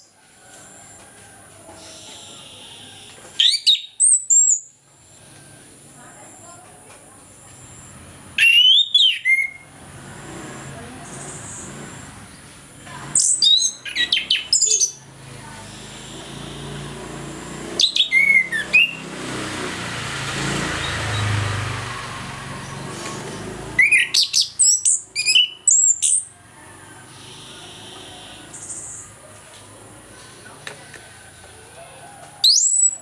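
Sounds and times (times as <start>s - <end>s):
thrush singing: 7.8s - 33.0s.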